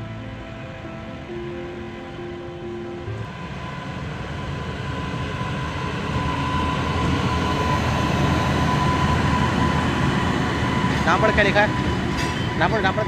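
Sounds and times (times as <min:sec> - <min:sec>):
steady high whine: 0:00.0 - 0:13.0
train wheels rumbling on rails: 0:03.2 - 0:13.0.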